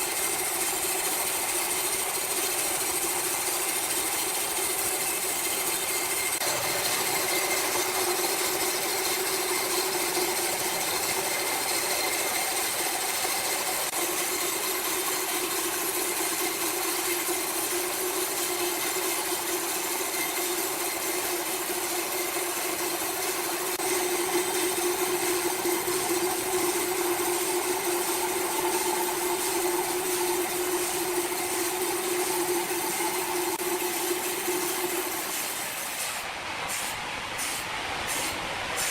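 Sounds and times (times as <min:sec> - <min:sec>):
sawmill machinery humming: 0:00.0 - 0:38.9
hiss: 0:35.2 - 0:38.9.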